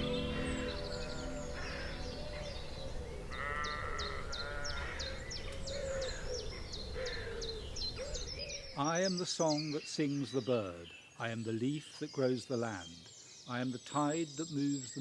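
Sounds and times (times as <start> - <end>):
bird repeating high falling note: 0.0 - 2.8
wavering animal cry: 0.0 - 6.5
birds chirping: 0.0 - 15.0.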